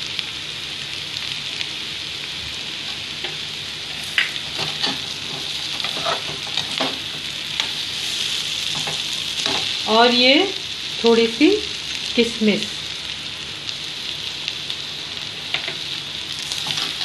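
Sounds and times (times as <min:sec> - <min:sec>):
food sizzling in a pan: 0:00.0 - 0:17.0
metal spoon scraping a pan: 0:02.9 - 0:07.8, 0:16.5 - 0:17.0.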